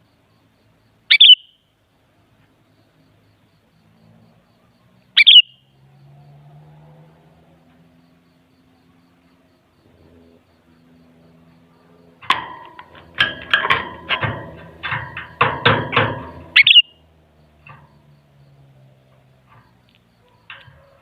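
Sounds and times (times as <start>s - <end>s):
bird calling sharp notes: 1.1s - 1.6s, 5.2s - 5.7s, 16.4s - 17.1s.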